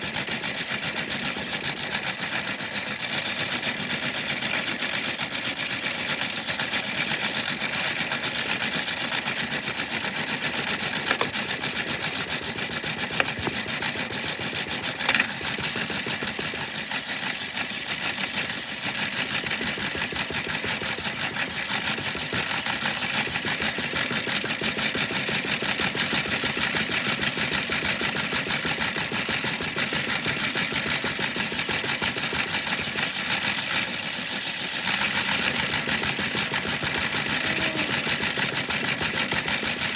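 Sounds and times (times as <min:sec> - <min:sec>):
washing machine rattling: 0:06.6 - 0:34.1, 0:34.9 - 0:39.9
rock knocking in washing machine: 0:10.7 - 0:16.8, 0:19.4 - 0:33.0.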